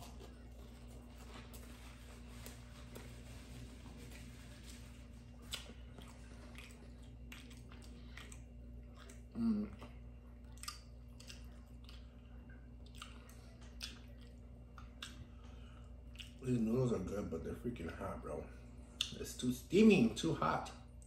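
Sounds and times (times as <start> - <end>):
chewing noodles: 0.0 - 16.5.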